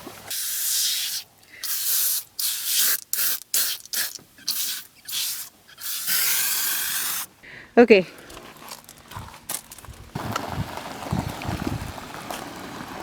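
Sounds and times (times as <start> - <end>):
spray can hissing bursts: 0.3 - 7.3.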